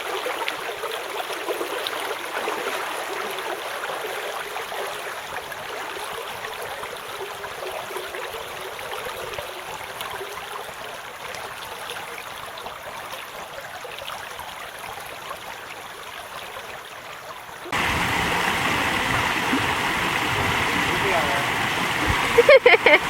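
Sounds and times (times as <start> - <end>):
creek water rushing: 0.0 - 23.0.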